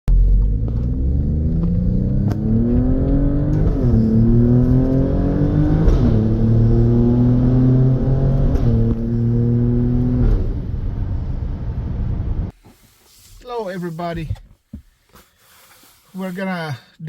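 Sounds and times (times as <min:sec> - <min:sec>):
car engine accelerating: 0:00.1 - 0:12.5.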